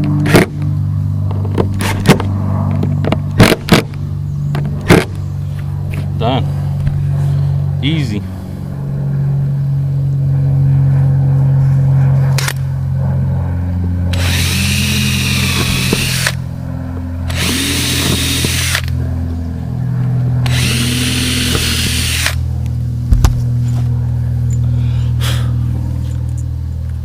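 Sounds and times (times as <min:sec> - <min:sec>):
cordless drill motor whine: 0:14.1 - 0:16.4, 0:17.2 - 0:19.0, 0:20.4 - 0:22.4.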